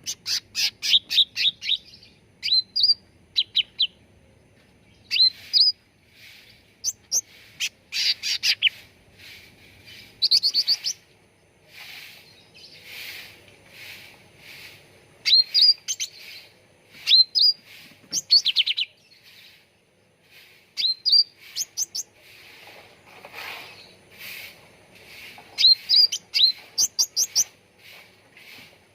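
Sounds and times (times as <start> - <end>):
bird singing whistles and chatter: 0.0 - 3.9, 5.0 - 5.8, 9.9 - 11.0, 15.2 - 19.6, 20.8 - 22.1, 25.6 - 27.6.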